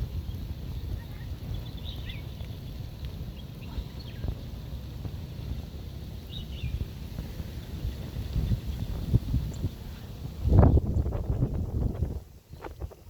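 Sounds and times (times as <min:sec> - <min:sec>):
wind rumbling on microphone: 0:00.0 - 0:13.0
faint high bird chirps: 0:00.9 - 0:02.8.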